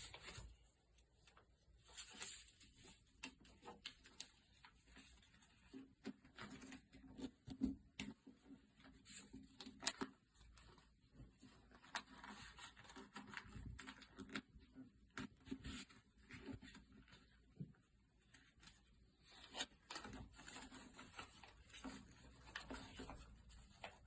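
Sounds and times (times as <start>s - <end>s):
paper crinkling and folding: 0.0s - 24.0s.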